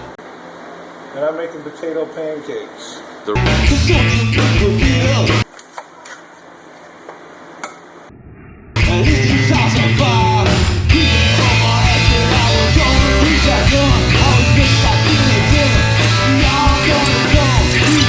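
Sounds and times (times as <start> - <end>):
loud rock music with singer: 8.8 - 18.0.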